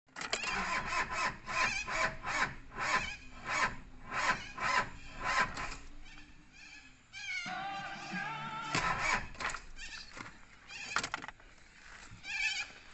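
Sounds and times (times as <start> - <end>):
starter cranking engine slowly: 0.3 - 5.9, 8.8 - 9.5.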